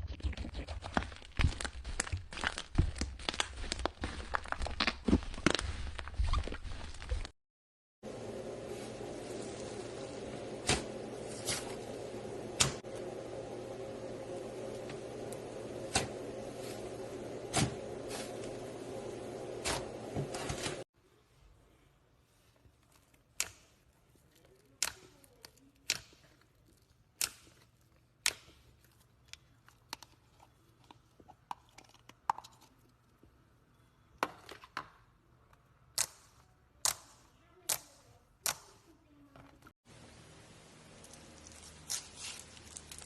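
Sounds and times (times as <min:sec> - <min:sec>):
slime crackles: 0:00.9 - 0:07.3, 0:41.2 - 0:43.0.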